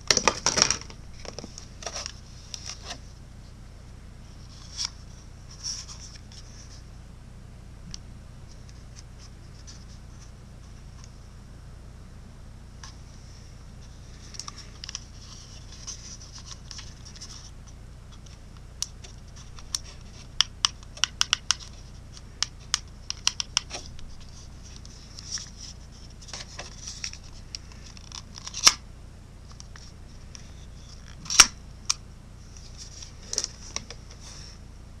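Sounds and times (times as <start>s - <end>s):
packaging rustling: 0.0s - 3.0s.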